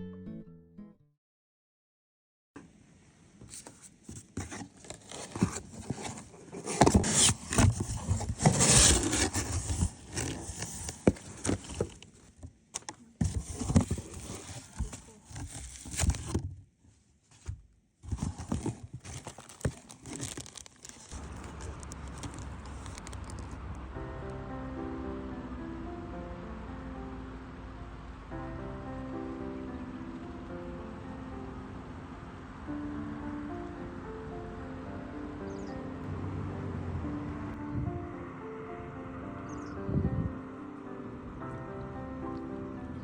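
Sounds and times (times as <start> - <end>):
rustling and scraping: 3.4 - 23.6.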